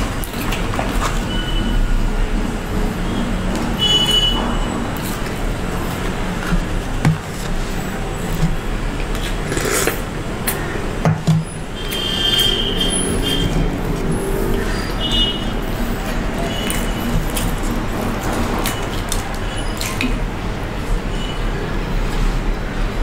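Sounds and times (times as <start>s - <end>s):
clicks and crunches: 4.9s - 10.6s.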